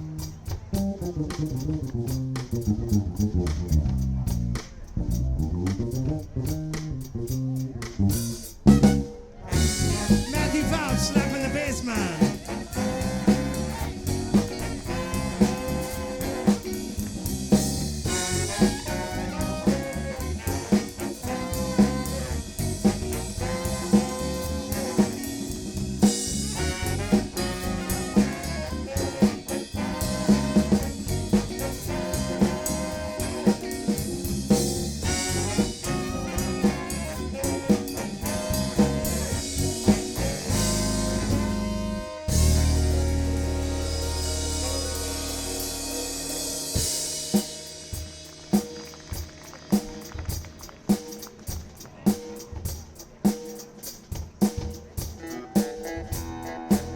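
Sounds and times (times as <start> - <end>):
drum kit beat: 0.0 - 5.0, 5.6 - 56.9
slap bass: 0.0 - 50.8, 56.0 - 56.9
soul band playing: 0.0 - 56.9
horn section: 8.6 - 49.2, 55.1 - 56.9.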